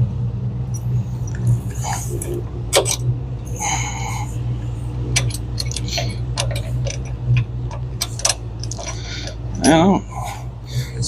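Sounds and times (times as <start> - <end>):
steady low hum: 0.0 - 11.0
metallic clicks of tools and bolts: 2.2 - 3.0, 5.1 - 9.8.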